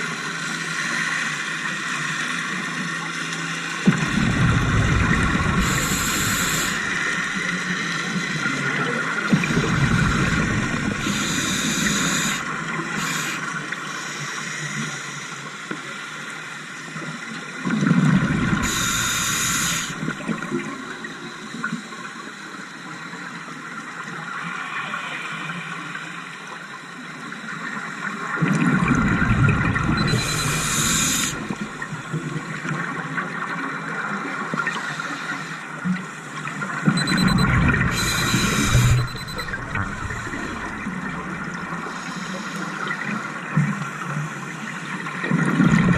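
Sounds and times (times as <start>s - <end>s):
exhaled bubbles rushing: 3.9s - 7.5s, 9.2s - 12.8s, 28.5s - 32.0s, 37.0s - 41.8s
regulator inhalation hiss: 5.6s - 7.4s, 9.5s - 15.3s, 18.6s - 20.1s, 30.0s - 31.8s, 37.9s - 40.9s, 41.8s - 42.8s.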